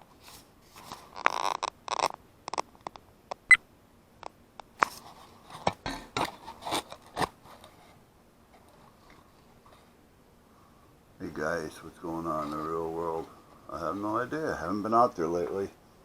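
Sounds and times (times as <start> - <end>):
small hard objects clicking: 1.2 - 3.5.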